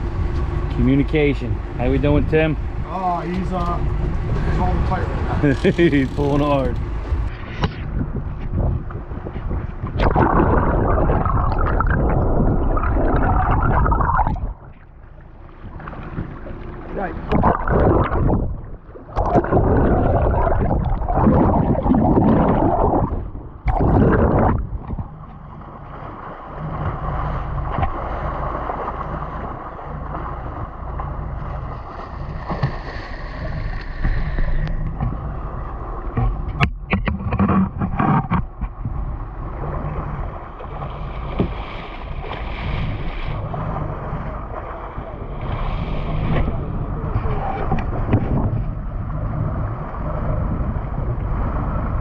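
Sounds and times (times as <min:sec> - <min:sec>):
boat engine running: 0:00.0 - 0:52.0
wind on microphone: 0:03.6 - 0:14.9, 0:17.1 - 0:25.7, 0:31.4 - 0:52.0.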